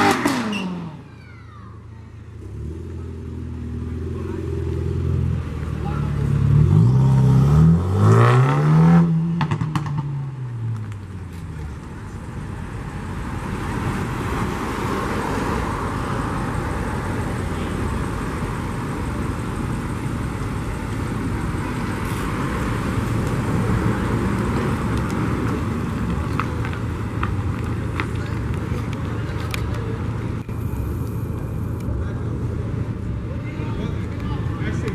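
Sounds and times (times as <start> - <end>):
car engine revving: 2.4 - 10.7.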